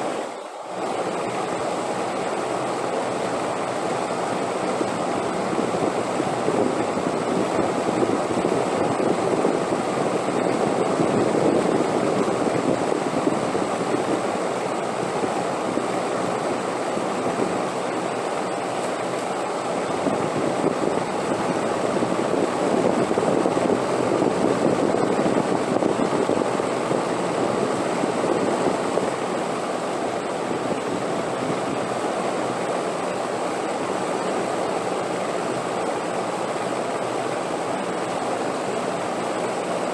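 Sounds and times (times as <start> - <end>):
wind blowing: 4.0 - 34.0.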